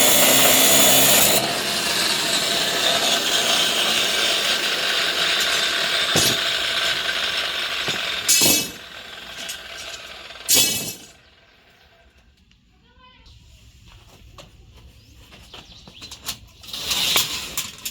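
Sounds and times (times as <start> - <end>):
tool working metal: 0.0 - 11.5.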